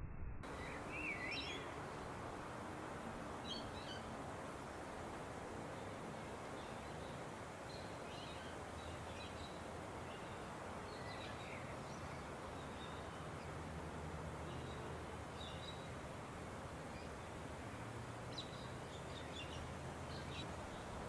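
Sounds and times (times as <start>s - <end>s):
low hum: 0.0s - 1.8s
outdoor background hiss: 0.4s - 21.0s
faint bird chirps: 0.5s - 1.7s.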